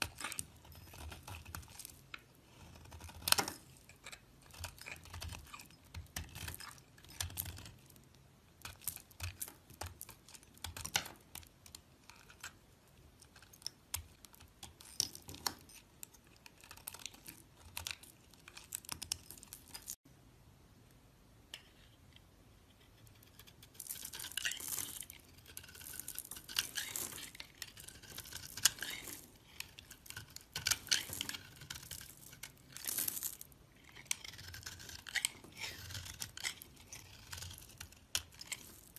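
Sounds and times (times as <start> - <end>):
blade scraping into soap: 22.9 - 32.9, 33.9 - 38.9.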